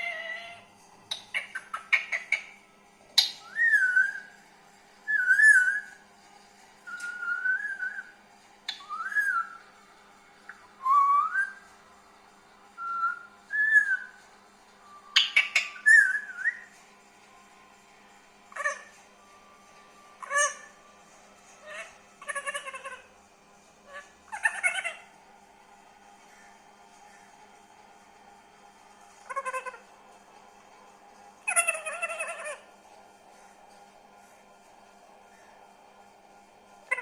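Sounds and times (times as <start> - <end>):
parrot whistling: 3.2 - 4.4, 5.1 - 6.0, 6.9 - 8.1, 8.7 - 9.6, 10.5 - 11.7, 12.8 - 14.2, 14.8 - 16.8, 20.2 - 20.8.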